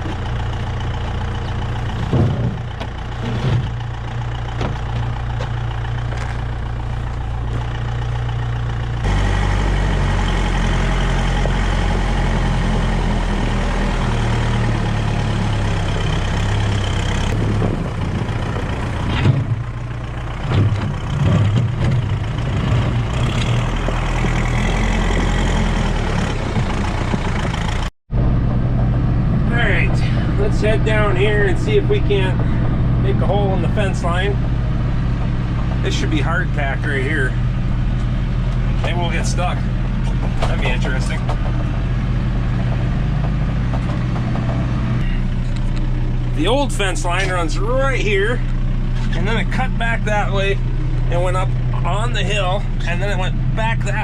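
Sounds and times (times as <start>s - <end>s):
knocks and clunks: 0.0s - 7.8s, 17.2s - 19.7s, 20.4s - 25.4s, 26.3s - 27.9s, 37.9s - 45.9s
vehicle engine running: 0.0s - 54.0s.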